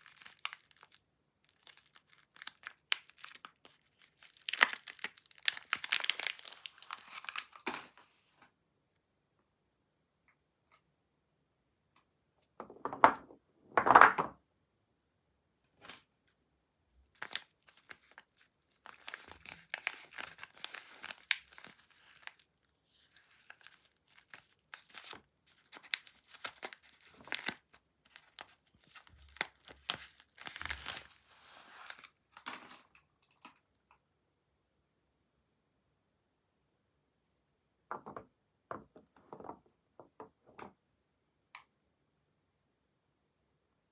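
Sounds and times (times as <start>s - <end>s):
packaging crinkling: 0.0s - 7.8s, 17.2s - 32.1s
packaging ripping: 0.0s - 7.9s, 17.2s - 32.1s.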